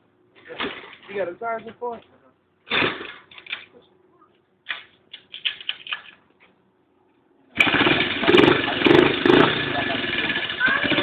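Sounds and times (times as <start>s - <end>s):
dirt bike engine running: 7.6s - 11.0s.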